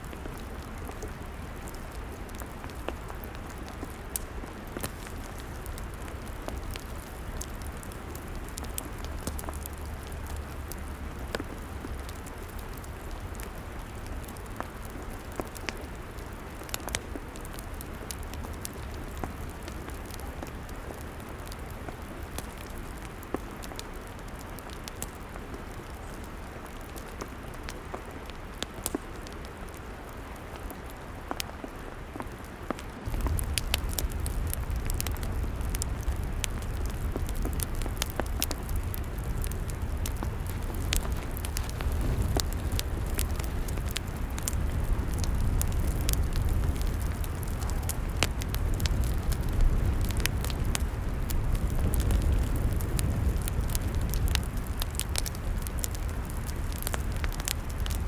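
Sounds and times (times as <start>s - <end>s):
log fire crackling: 0.0s - 58.0s
low rumble: 33.1s - 58.0s.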